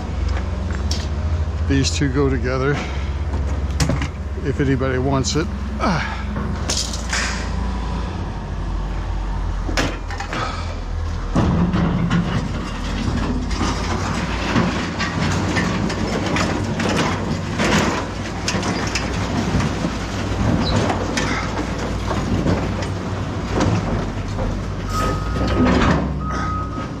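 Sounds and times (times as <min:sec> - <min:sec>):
vehicle engine rumbling: 0:00.0 - 0:27.0
light rattles and knocks: 0:11.2 - 0:24.8.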